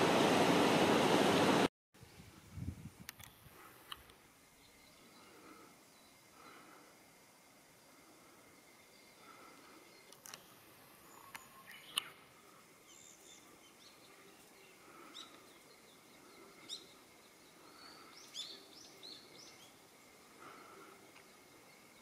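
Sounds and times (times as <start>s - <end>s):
bird chirps: 11.0s - 12.2s.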